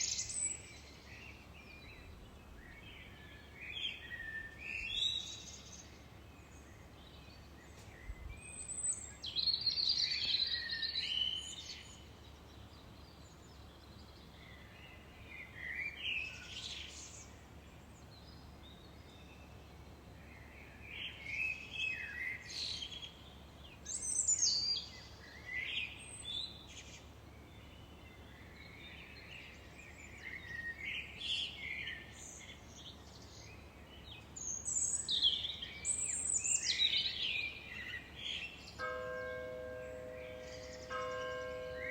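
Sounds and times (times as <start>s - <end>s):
faint background hiss: 0.0s - 41.9s
songbirds chirping and trilling: 0.0s - 41.9s.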